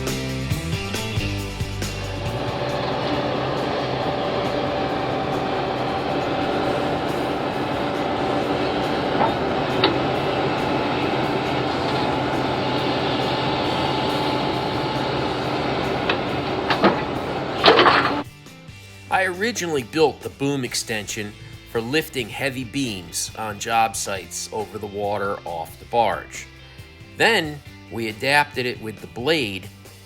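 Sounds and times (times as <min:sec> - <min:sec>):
excavator running: 0:00.0 - 0:18.3.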